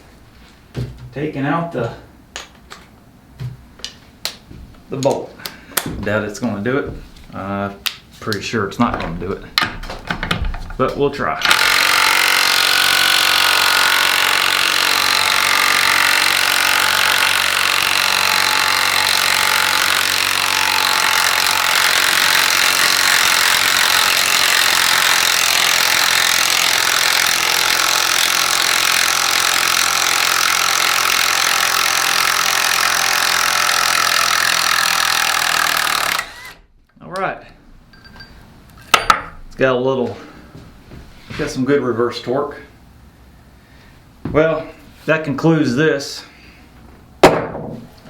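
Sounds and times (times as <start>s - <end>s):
impact driver hammering: 11.4s - 36.6s, 47.2s - 47.8s.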